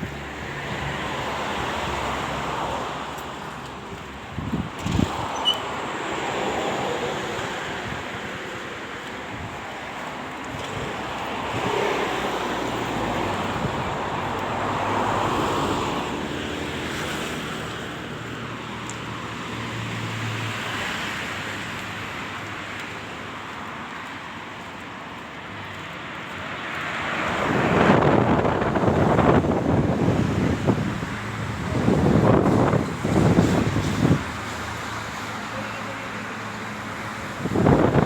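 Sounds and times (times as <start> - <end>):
vehicles passing: 0.0 - 38.0
wind on microphone: 3.8 - 18.8, 27.0 - 35.1, 36.8 - 38.0.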